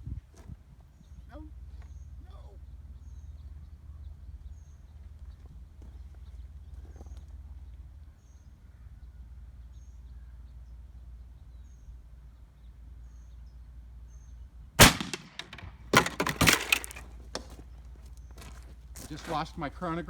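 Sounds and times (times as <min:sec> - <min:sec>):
air rifle shot: 0:14.8 - 0:17.0
clattering knocks: 0:15.2 - 0:17.0.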